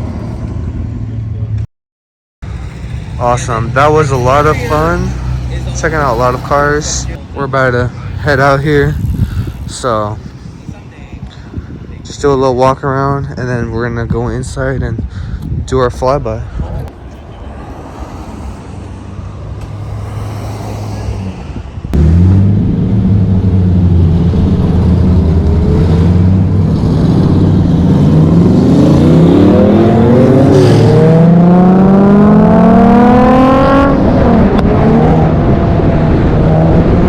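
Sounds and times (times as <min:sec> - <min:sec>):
car engines revving and accelerating: 0:02.4 - 0:10.6, 0:16.8 - 0:37.0.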